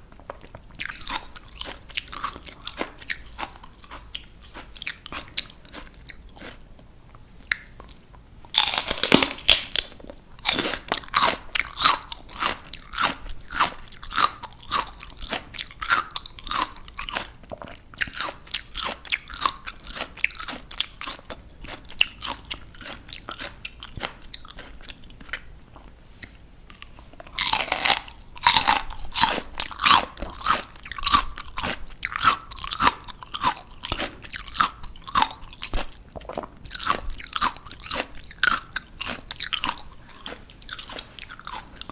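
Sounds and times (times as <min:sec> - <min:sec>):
crunchy bites into vegetables: 0:00.1 - 0:06.6, 0:07.5 - 0:25.9, 0:26.7 - 0:41.9
wet chewing crunches: 0:00.1 - 0:06.7, 0:07.4 - 0:41.9.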